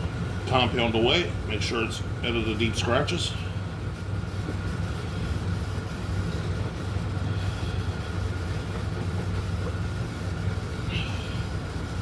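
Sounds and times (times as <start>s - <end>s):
low mechanical drone: 0.0s - 12.0s.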